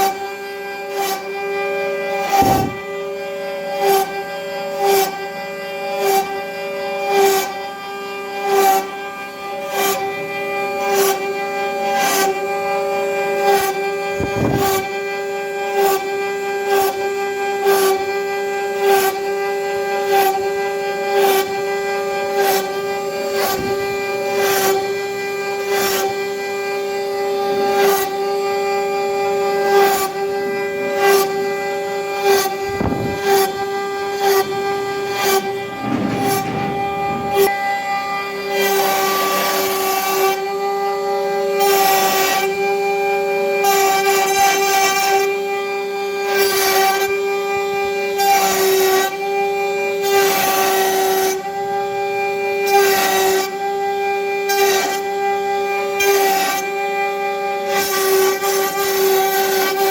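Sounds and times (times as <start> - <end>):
router spindle whine: 0.0 - 44.0
router cutting wood: 0.0 - 59.9.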